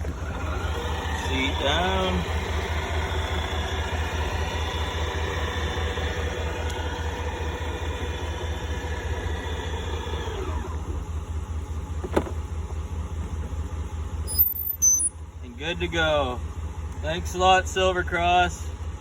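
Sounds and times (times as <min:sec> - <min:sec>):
electric seat motor whine: 0:06.3 - 0:11.0
low steady rumble: 0:10.6 - 0:19.0.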